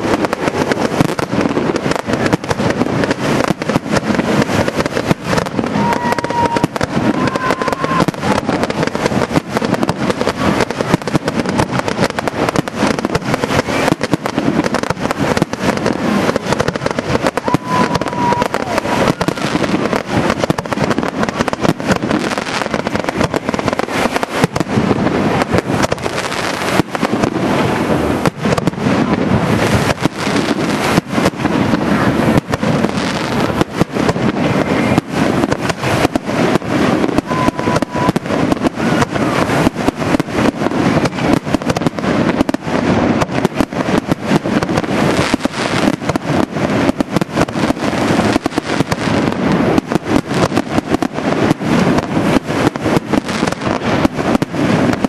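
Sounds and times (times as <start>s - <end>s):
fireworks bangs: 0.0s - 55.0s.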